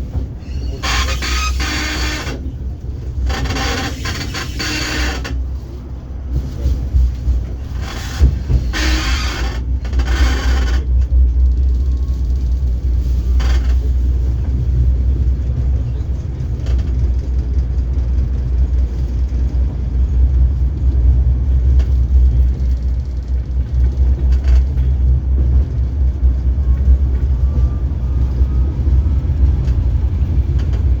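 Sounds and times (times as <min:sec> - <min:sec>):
tram rumbling: 0:00.0 - 0:31.0
faint thin squeal: 0:00.4 - 0:02.3.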